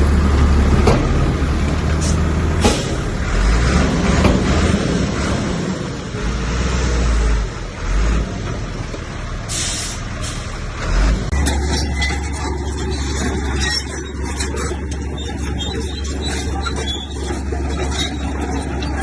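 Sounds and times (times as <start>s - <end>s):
heavy machinery diesel engines: 0.0s - 19.0s
air hiss: 9.5s - 10.5s.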